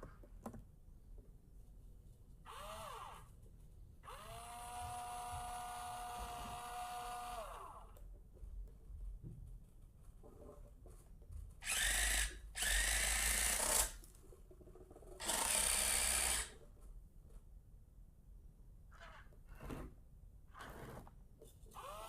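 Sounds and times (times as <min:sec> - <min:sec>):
electric gear motors whirring: 0:11.6 - 0:14.0.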